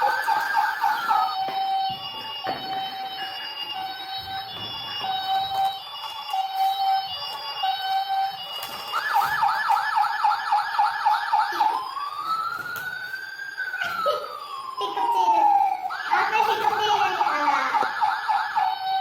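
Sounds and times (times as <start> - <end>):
emergency vehicle siren: 0.0 - 19.0.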